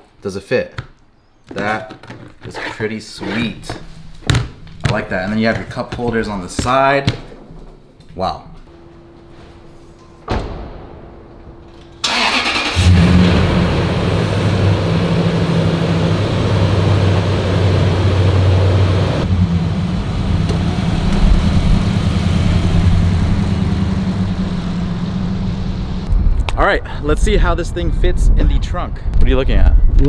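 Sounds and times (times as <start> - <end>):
car engine starting and idling: 11.8 - 26.1.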